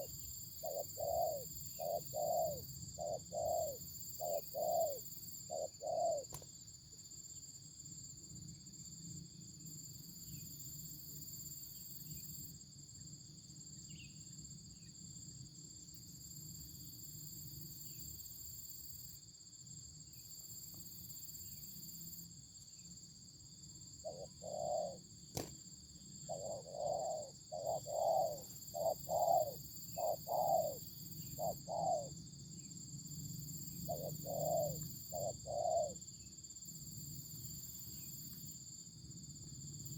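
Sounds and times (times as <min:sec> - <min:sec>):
dove cooing: 0:00.0 - 0:06.3, 0:24.0 - 0:25.0, 0:26.3 - 0:32.1, 0:33.8 - 0:36.0.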